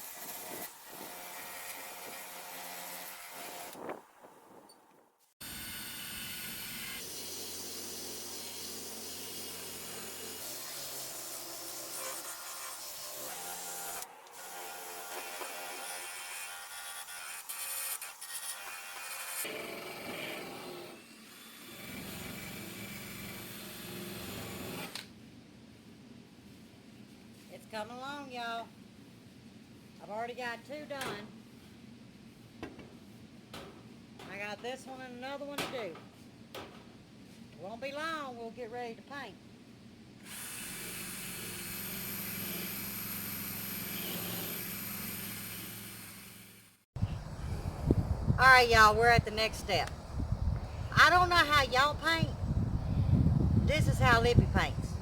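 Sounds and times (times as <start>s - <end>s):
power sander grinding metal: 40.3s - 46.5s.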